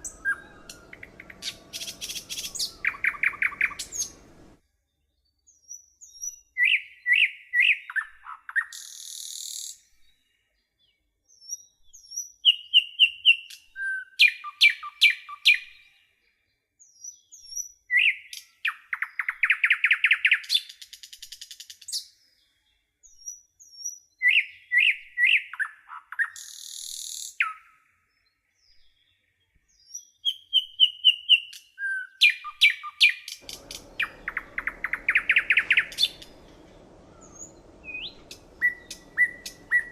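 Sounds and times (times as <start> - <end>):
low hiss: 0.0 - 4.6, 33.4 - 39.9
songbird singing: 0.0 - 39.9.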